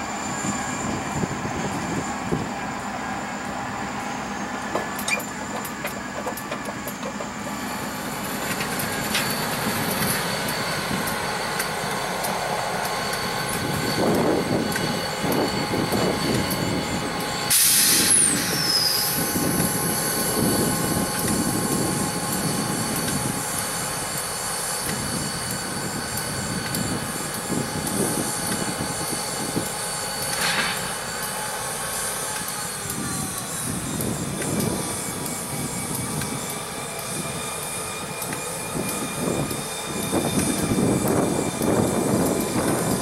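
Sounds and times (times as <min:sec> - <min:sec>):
locomotive engines running: 0:00.0 - 0:43.0
steel wheels on rails: 0:00.0 - 0:43.0
loud hiss with falling whistle: 0:12.4 - 0:43.0.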